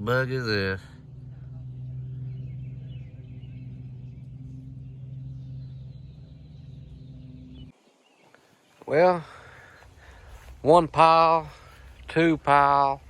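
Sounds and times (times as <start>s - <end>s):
low mechanical hum: 0.0s - 7.8s.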